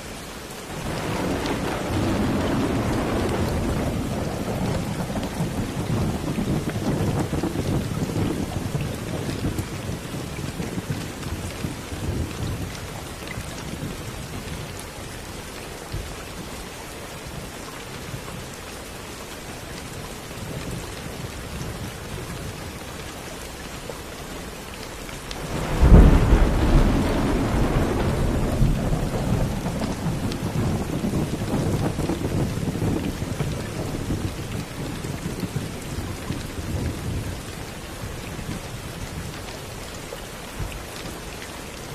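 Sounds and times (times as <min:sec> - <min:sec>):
steady rain: 0:00.0 - 0:41.9
thunder rumbling: 0:00.7 - 0:14.8, 0:25.4 - 0:39.4
loud thunderclap: 0:00.8 - 0:10.0, 0:25.4 - 0:35.7.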